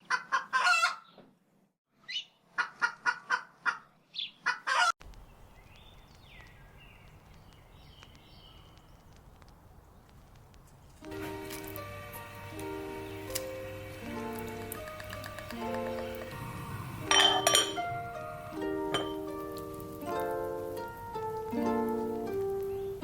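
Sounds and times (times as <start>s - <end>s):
domestic fowl calling: 0.0s - 1.1s, 2.1s - 5.0s.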